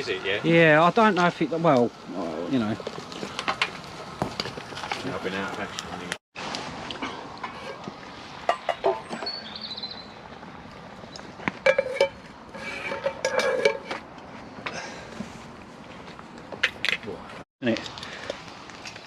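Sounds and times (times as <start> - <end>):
metal cookware clinking: 11.6 - 14.0.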